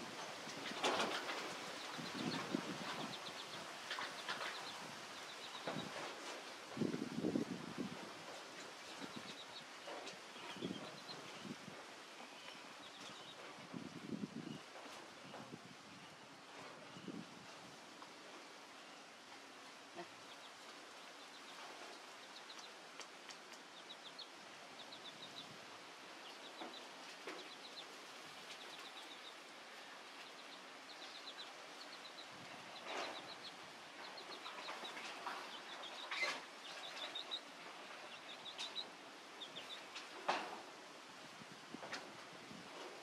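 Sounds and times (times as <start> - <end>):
birds chirping: 0.2 - 6.1, 26.2 - 40.0.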